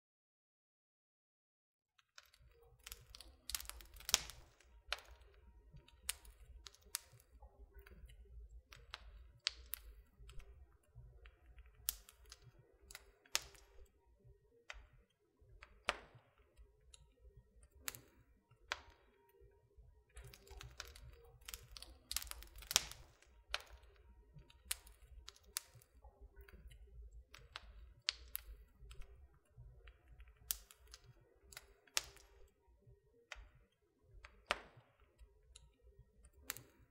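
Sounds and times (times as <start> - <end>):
wood fire crackling: 2.2 - 14.1, 14.7 - 32.6, 33.3 - 36.9.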